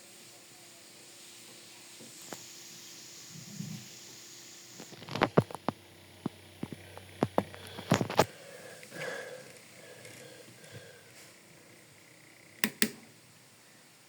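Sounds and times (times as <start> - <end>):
steady hiss: 0.0 - 14.0
sharp plastic clicks and knocks: 12.6 - 13.1.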